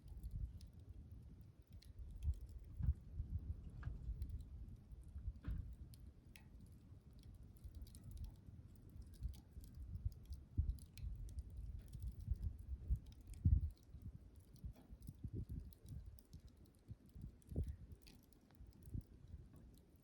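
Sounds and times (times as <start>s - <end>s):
campfire crackling and popping: 0.0s - 20.0s
soft low thuds: 2.7s - 4.2s.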